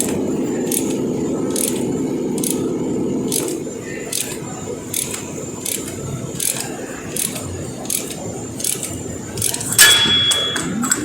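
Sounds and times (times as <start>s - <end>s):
metallic clatter with ringing: 3.3s - 11.0s.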